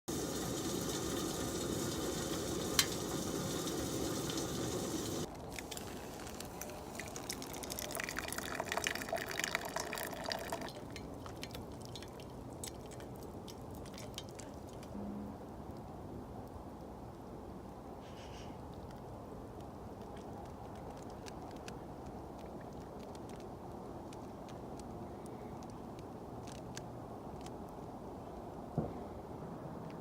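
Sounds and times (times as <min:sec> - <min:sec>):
campfire hissing and crackling: 0:00.1 - 0:14.9.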